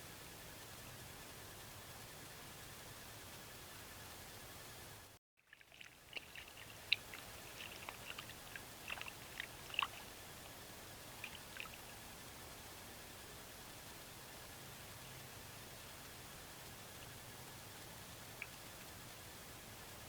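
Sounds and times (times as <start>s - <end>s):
water splashes and drips: 5.4s - 10.6s, 11.2s - 12.0s.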